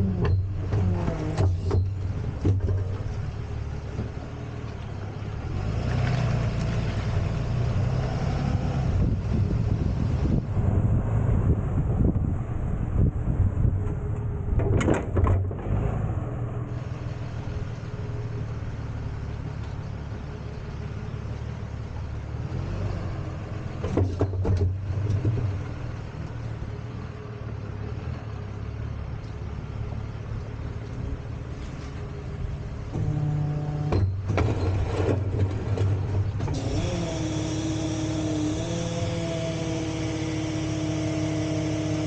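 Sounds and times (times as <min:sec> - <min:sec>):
tow truck engine running: 0:00.0 - 0:42.0
sharp clunks: 0:14.5 - 0:15.7, 0:33.8 - 0:36.8.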